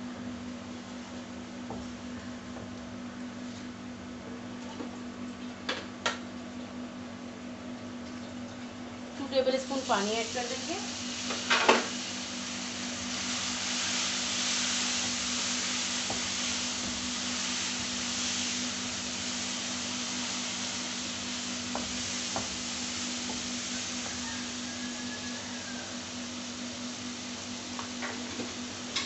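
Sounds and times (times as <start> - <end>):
spices sizzling in hot oil: 9.6 - 29.0
spatula stirring and tapping pan: 16.0 - 17.1, 21.6 - 22.6, 23.2 - 24.2.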